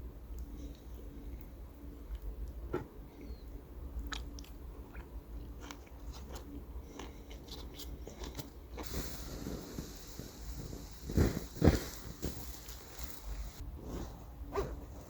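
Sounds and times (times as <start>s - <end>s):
person chewing crunchy food: 4.0s - 13.3s
steady hiss: 8.8s - 14.0s.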